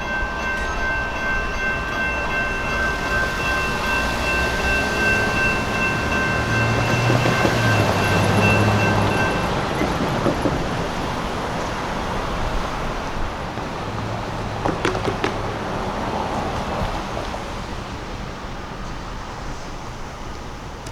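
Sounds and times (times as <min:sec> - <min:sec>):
high ringing tone: 0:00.0 - 0:09.5
train wheels rumbling on rails: 0:00.0 - 0:20.9.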